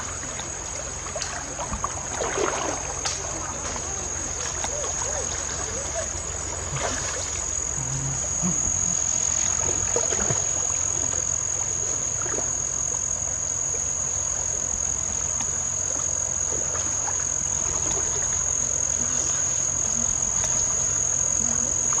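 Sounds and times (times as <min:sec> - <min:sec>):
insects droning: 0:00.0 - 0:22.0
low steady rumble: 0:00.0 - 0:22.0.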